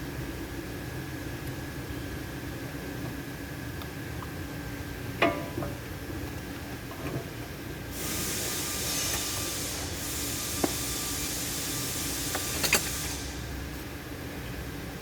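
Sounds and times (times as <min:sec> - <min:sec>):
pressurized hiss from nozzle: 0:08.0 - 0:13.4.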